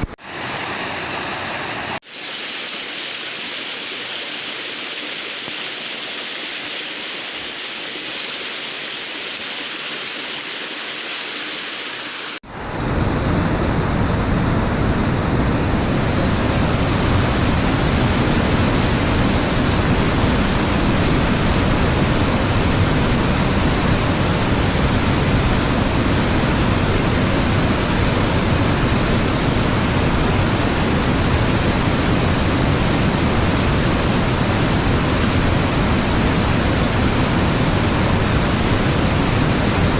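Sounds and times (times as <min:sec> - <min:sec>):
waterfall rushing: 0:00.1 - 0:12.4.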